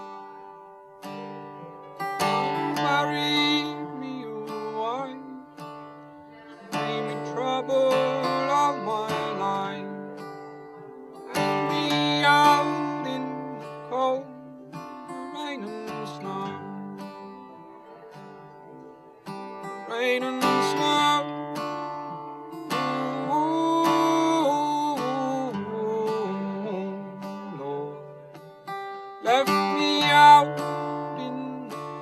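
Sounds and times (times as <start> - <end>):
man singing: 0.0 - 28.6, 29.2 - 32.0
acoustic guitar playing: 0.0 - 32.0.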